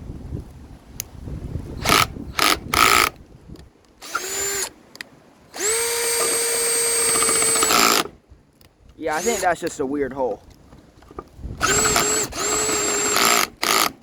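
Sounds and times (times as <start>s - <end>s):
cordless drill drilling into wood: 1.8s - 3.1s, 4.0s - 4.8s, 5.5s - 8.1s, 9.1s - 9.6s, 11.6s - 14.0s.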